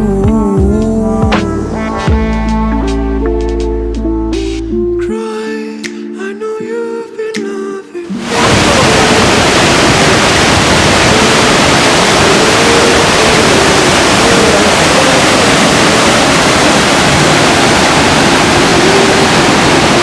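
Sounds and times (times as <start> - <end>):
waterfall rushing: 8.1 - 20.0.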